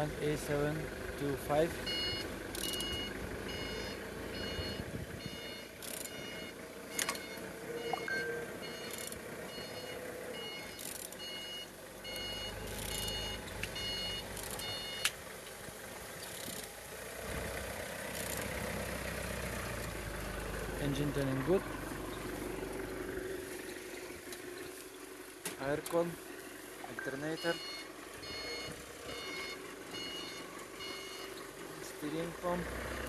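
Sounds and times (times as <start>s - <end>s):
reversing alarm beeping: 1.9s - 15.1s, 27.0s - 31.4s.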